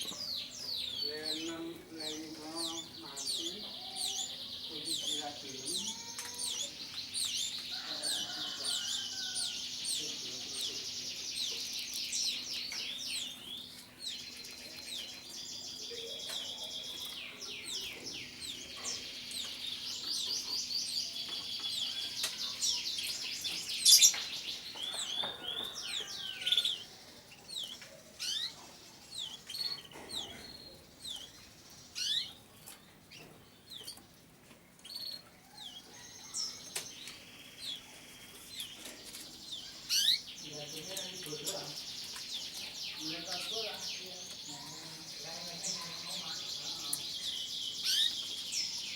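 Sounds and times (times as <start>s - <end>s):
canaries singing with trills: 0.0s - 48.9s.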